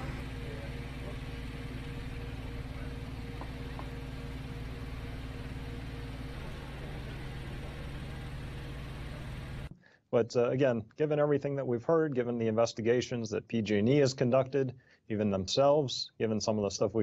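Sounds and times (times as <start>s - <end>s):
low mechanical hum: 0.0s - 9.7s.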